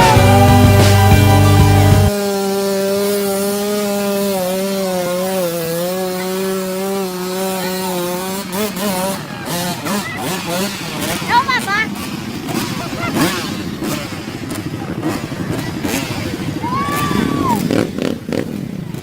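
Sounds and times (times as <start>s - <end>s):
rock music: 0.0s - 2.2s
dirt bike engine revving: 0.0s - 19.0s.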